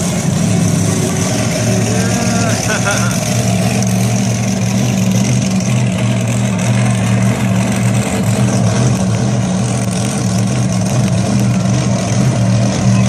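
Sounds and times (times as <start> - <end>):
large engine humming: 0.0 - 13.0.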